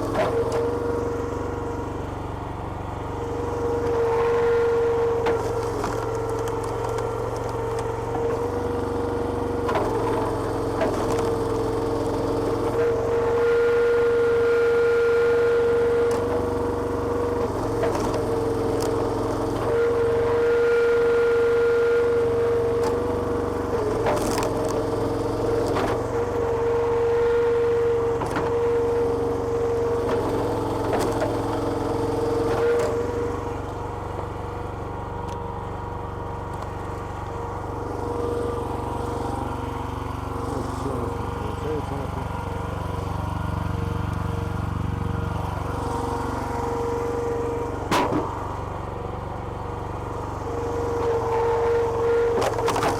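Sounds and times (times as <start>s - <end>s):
small petrol engine running: 0.0s - 52.9s
wood splitting cracks: 52.4s - 52.9s.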